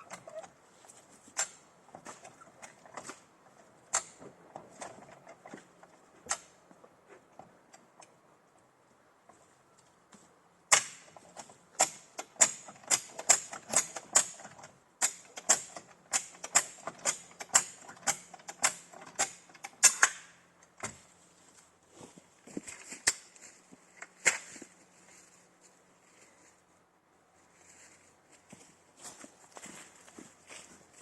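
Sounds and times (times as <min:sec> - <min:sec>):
ratchet clacking: 0:11.8 - 0:20.2.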